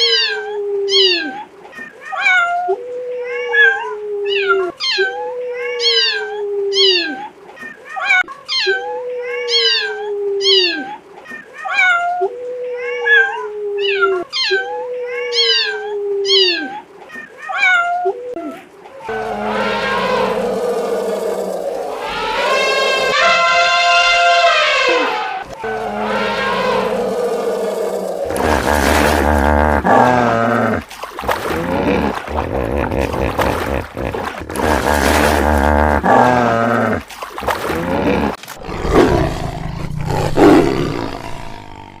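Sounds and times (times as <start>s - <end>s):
long falling animal calls: 18.0s - 36.4s
rising and falling animal calls: 19.0s - 36.4s
big cat roaring: 19.1s - 23.2s, 25.5s - 42.0s.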